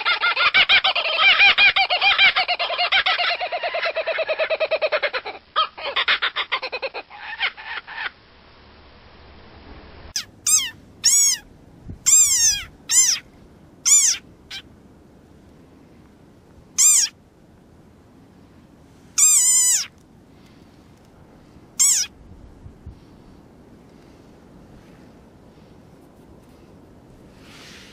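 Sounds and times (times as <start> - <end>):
small animal squeaky calls: 10.2 - 11.5, 12.1 - 13.2, 13.9 - 14.6, 16.8 - 17.1, 19.2 - 19.9, 21.8 - 22.1.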